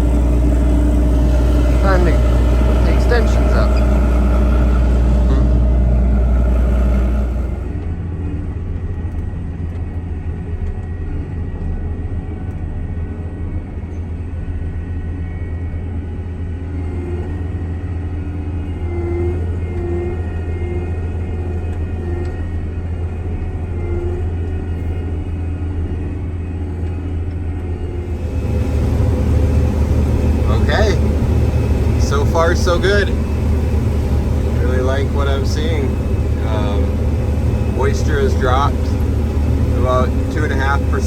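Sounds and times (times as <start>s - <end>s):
faint whining tones: 0.0s - 8.4s, 19.1s - 41.0s
combine harvester drone: 0.0s - 8.6s, 27.9s - 41.0s.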